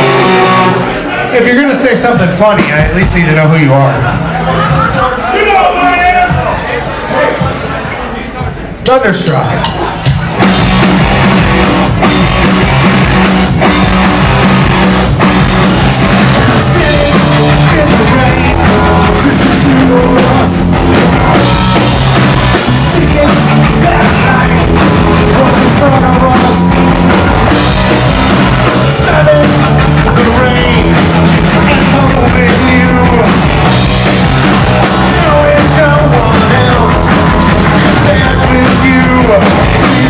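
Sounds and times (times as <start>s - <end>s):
electric guitars: 0.0s - 1.3s, 10.2s - 40.0s
drum kit: 0.0s - 4.9s, 8.8s - 40.0s
bass guitar: 0.0s - 5.0s, 9.2s - 40.0s
person singing: 16.4s - 21.9s, 22.5s - 26.9s, 28.6s - 33.5s, 34.5s - 40.0s.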